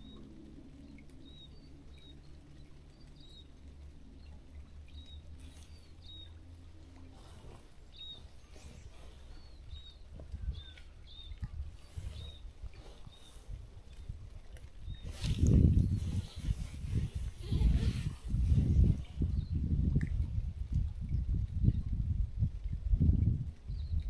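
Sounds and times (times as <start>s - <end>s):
low outdoor rumble: 0.0s - 24.0s
small bird chirping: 4.9s - 6.6s, 7.2s - 14.1s.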